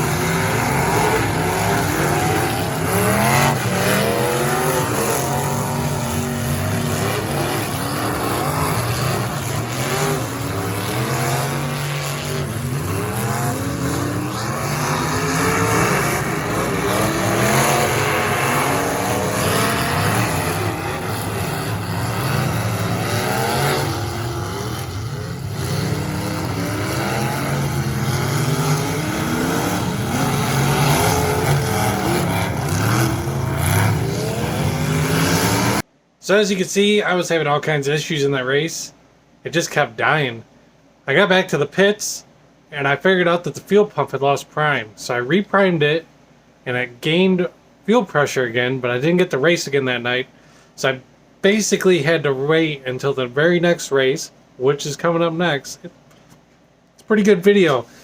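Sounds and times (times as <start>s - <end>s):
race car engines revving: 0.0s - 35.9s.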